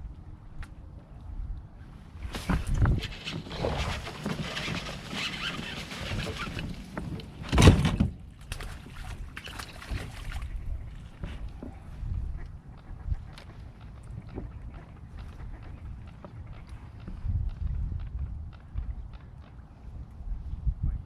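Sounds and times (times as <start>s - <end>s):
water splashing around kayak: 2.2s - 17.7s.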